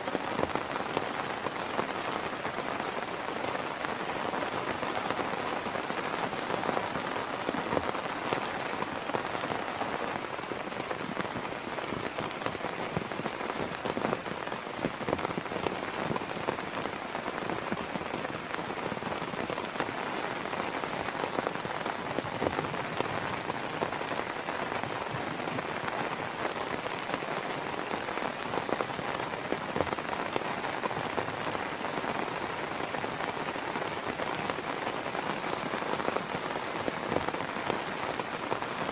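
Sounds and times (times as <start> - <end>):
heavy rain: 0.0 - 38.9
raindrops patting nearby: 0.0 - 38.9.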